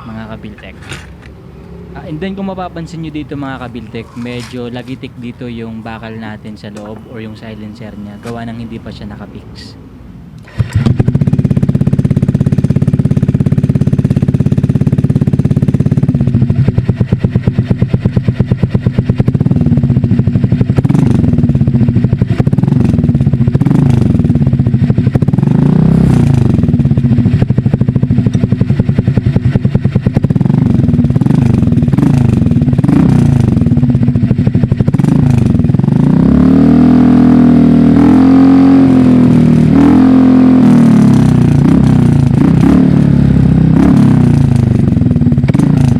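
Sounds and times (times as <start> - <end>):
metallic rattle in exhaust: 0.0 - 9.2, 10.4 - 36.2
scooter engine revving: 0.0 - 9.2, 10.4 - 45.9.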